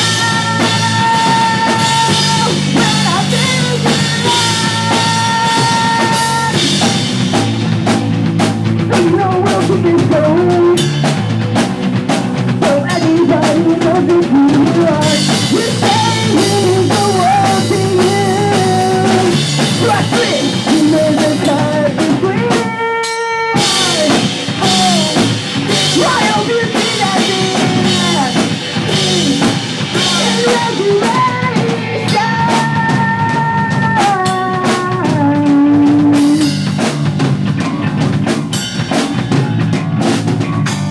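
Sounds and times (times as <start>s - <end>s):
person singing: 0.0s - 7.1s, 8.9s - 11.0s, 12.6s - 36.5s
pop punk band playing live: 0.0s - 40.9s.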